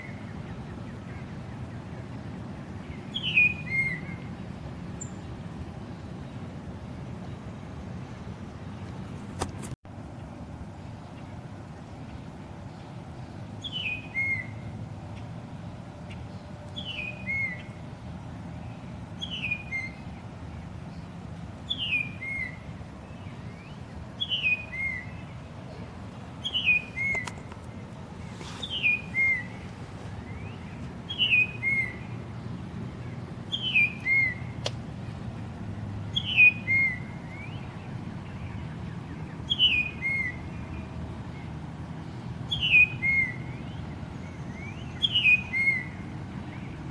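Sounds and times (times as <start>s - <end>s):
bird whistle call: 3.1s - 4.3s, 13.6s - 14.6s, 23.6s - 25.2s, 28.6s - 29.6s, 30.4s - 32.0s, 33.5s - 34.6s, 36.1s - 37.7s, 39.5s - 40.4s, 42.5s - 43.6s, 44.3s - 46.0s.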